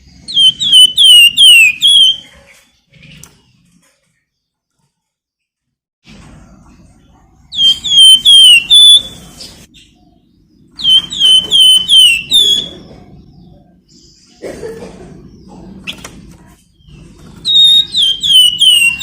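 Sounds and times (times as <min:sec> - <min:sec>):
songbird shrill whistled calls: 0:00.3 - 0:02.2, 0:07.6 - 0:09.2, 0:10.8 - 0:12.8, 0:17.4 - 0:19.0.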